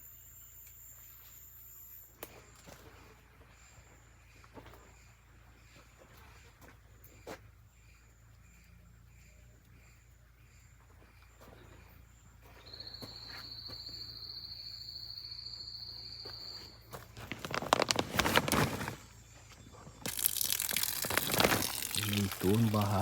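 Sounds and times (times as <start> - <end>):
footsteps through dry leaves: 17.0 - 19.1, 20.1 - 23.0
insect buzzing: 20.0 - 23.0.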